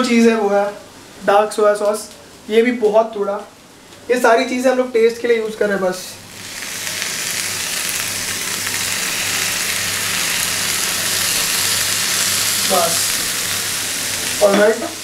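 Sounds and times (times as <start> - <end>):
food sizzling in a frying pan: 6.2 - 15.0.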